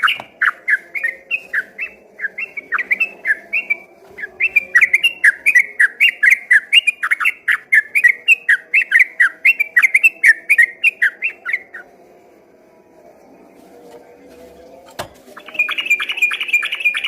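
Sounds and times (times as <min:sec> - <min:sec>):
bird singing whistled notes: 0:00.0 - 0:11.9, 0:15.3 - 0:17.0.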